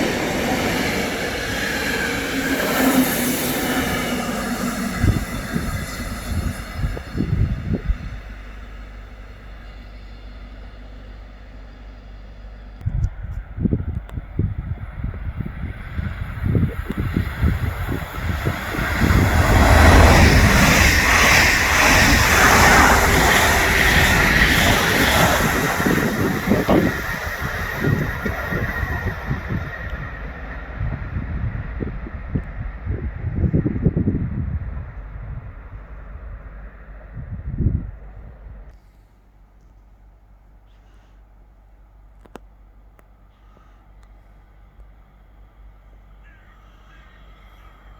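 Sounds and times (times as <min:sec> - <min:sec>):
wind buffeting microphone: 0:00.0 - 0:08.9, 0:12.8 - 0:38.7
low rumble: 0:00.0 - 0:38.8
passing train: 0:00.0 - 0:47.9.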